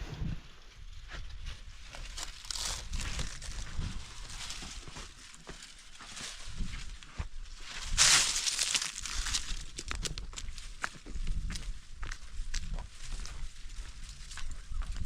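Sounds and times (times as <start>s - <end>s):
material rustling and crinkling: 1.8s - 7.0s.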